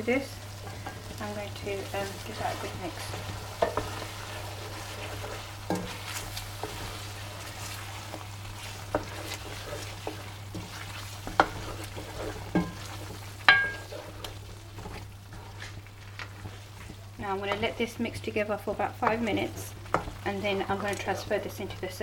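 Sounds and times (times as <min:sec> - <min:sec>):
sauce sizzling in a pan: 0:00.0 - 0:22.0
spoon knocking against pan: 0:13.5 - 0:13.9.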